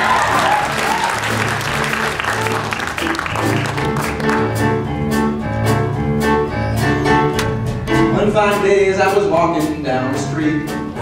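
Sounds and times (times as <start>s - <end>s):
audience applauding: 0.0s - 4.8s
band playing instrumental: 0.0s - 11.0s.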